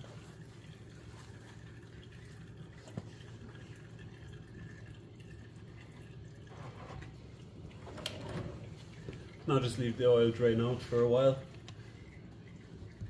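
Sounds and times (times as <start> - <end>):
oil trickling into a bucket: 0.0 - 13.0.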